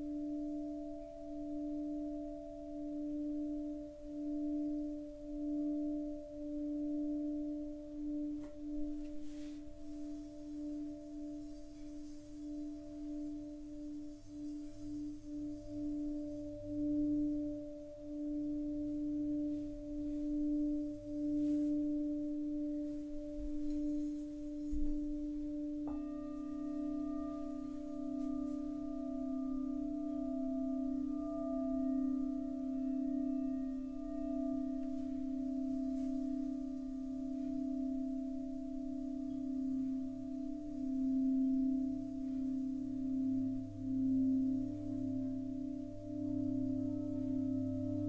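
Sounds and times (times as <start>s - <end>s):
singing bowl bell tone: 0.0s - 48.0s.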